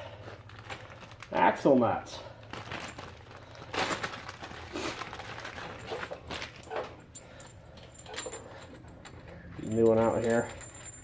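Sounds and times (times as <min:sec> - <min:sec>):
packaging rustling: 0:00.1 - 0:07.0.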